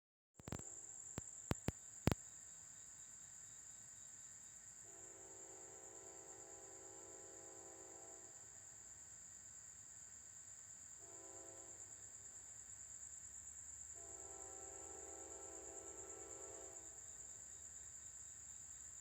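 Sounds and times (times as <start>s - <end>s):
insects droning: 0.4s - 19.0s
sharp clicks: 1.2s - 1.8s
distant locomotive horn: 4.9s - 8.4s, 11.0s - 11.9s, 14.0s - 17.0s.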